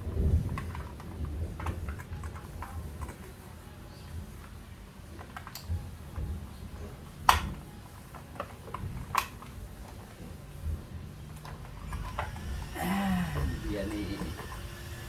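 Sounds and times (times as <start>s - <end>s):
sharp plastic click: 7.2s - 9.6s.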